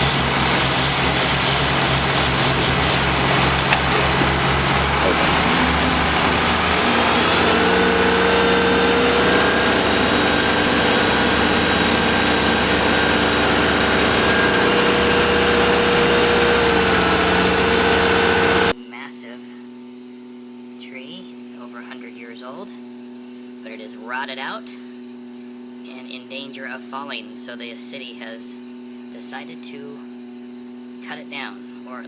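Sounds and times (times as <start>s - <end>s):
small engine whining: 0.0s - 18.8s.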